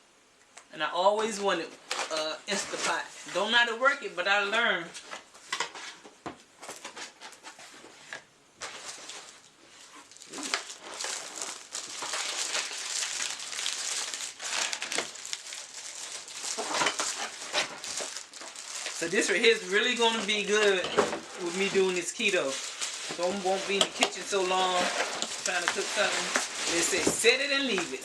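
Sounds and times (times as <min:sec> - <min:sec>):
packaging crinkling: 0:08.6 - 0:28.0.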